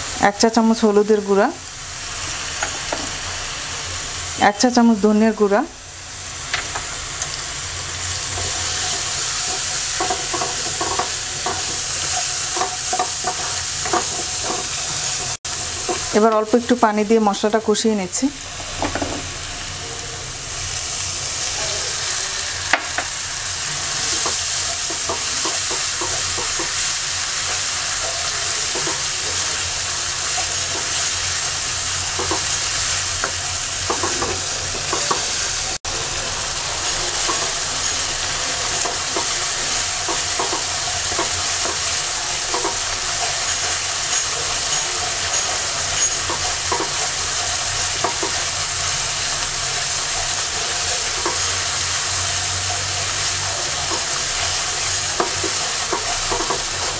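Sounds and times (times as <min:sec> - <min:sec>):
spice paste sizzling in oil: 0:00.0 - 0:56.9
spoon clicking and scraping pan: 0:08.4 - 0:16.1, 0:23.9 - 0:29.1, 0:32.1 - 0:35.4, 0:38.7 - 0:48.6, 0:53.8 - 0:56.9.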